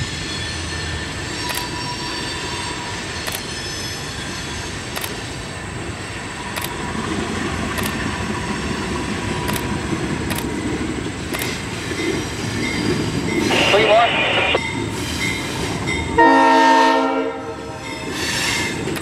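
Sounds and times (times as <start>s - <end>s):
diesel locomotive rumbling: 0.0s - 19.0s
sharp clicks: 5.0s - 5.2s, 6.6s - 6.8s, 7.7s - 8.0s, 9.5s - 9.7s, 10.3s - 10.5s, 11.3s - 11.6s.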